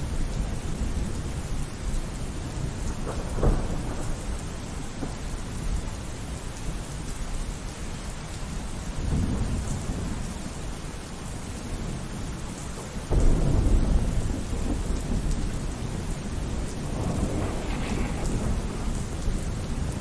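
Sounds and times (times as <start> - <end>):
steady rainfall: 0.0 - 20.0
rolling thunder: 12.9 - 20.0.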